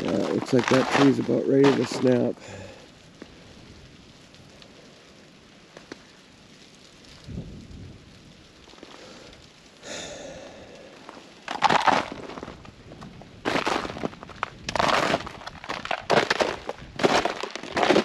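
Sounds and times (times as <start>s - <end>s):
ice crunch: 0.0s - 2.8s, 9.9s - 18.0s
ice pattering in trees: 0.0s - 18.0s.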